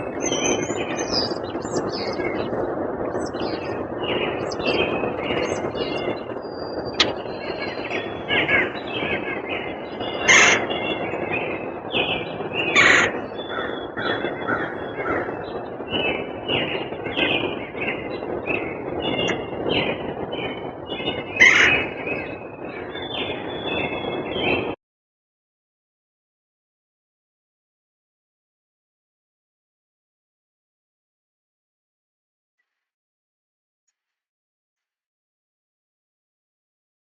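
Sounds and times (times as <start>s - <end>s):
harsh bird calls: 0.0s - 24.6s
songbirds chirping: 0.0s - 24.7s.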